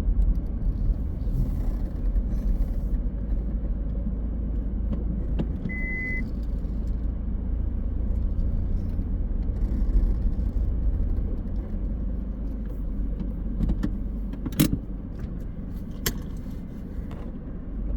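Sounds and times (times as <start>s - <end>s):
car engine and road noise: 0.0s - 17.9s
short high beep: 5.7s - 6.2s.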